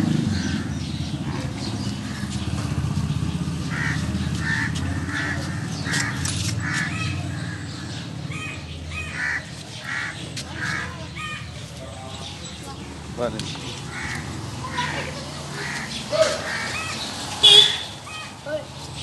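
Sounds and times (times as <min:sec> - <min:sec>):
bird calling: 0:03.7 - 0:12.5, 0:13.4 - 0:18.4.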